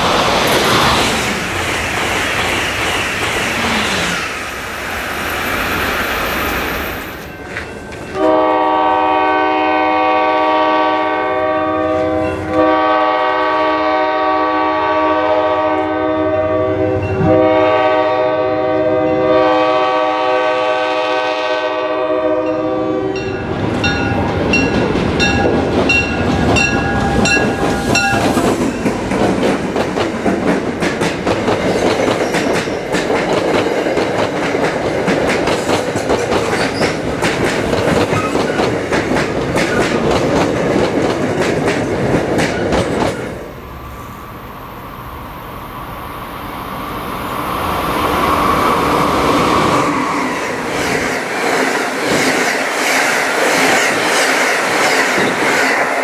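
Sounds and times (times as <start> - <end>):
train wheels clacking on rails: 0.0 - 8.7, 21.4 - 43.4, 48.2 - 56.0
electric train rushing past: 0.0 - 56.0
locomotive air horn blasts: 8.2 - 23.3
bell ringing: 23.2 - 28.8.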